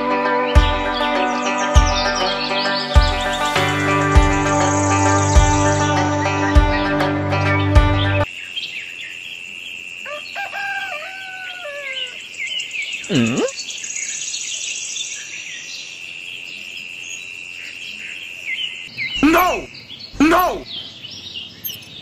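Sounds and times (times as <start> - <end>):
high insect-like drone: 3.3 - 6.1
bird chirps: 12.0 - 22.0
swooping bird call: 19.2 - 20.7.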